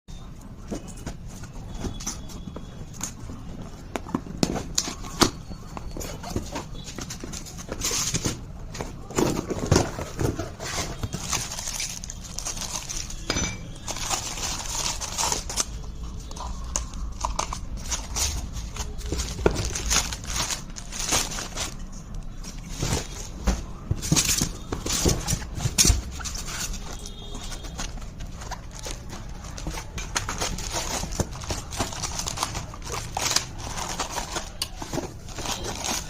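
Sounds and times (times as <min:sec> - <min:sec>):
packaging rustling: 0:00.5 - 0:36.0
knocks and clinks of parts: 0:04.0 - 0:21.8.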